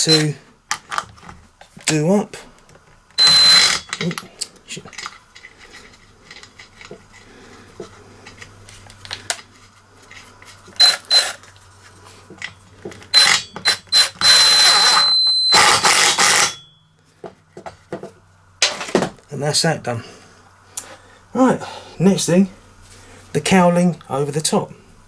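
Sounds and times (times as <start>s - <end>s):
power tool whining: 3.2s - 4.1s, 10.8s - 11.4s, 13.1s - 16.6s.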